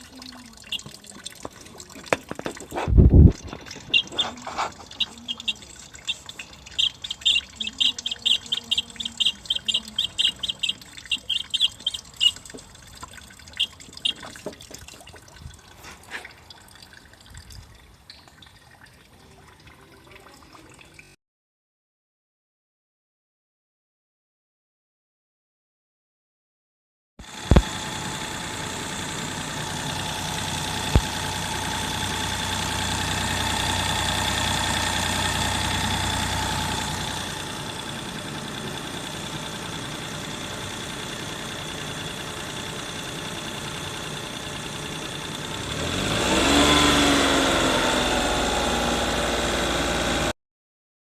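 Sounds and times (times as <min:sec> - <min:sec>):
car engine idling: 0:03.4 - 0:14.4, 0:27.3 - 0:50.3.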